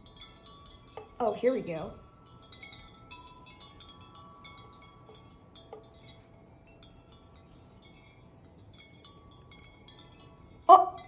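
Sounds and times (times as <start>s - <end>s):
wind chimes ringing: 0.0s - 11.0s.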